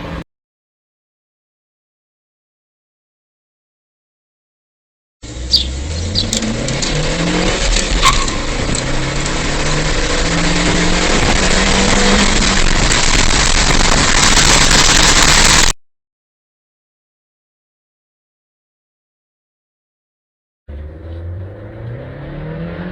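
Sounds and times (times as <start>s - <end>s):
road and wind noise: 0.0s - 0.2s, 5.2s - 15.8s, 20.7s - 22.9s
car engine accelerating: 5.2s - 15.7s, 20.7s - 22.9s.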